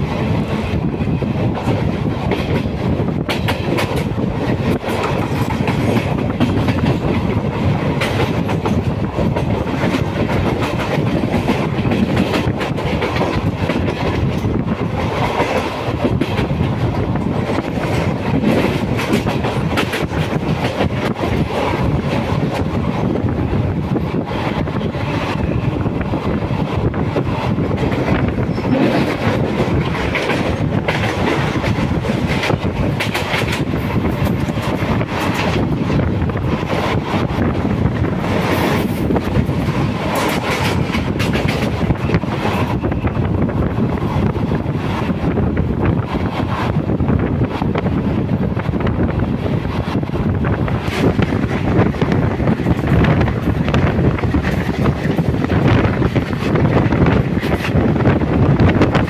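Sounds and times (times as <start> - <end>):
train wheels rumbling on rail: 0.0 - 59.0
clacks over rail joints: 1.6 - 23.3, 23.9 - 59.0.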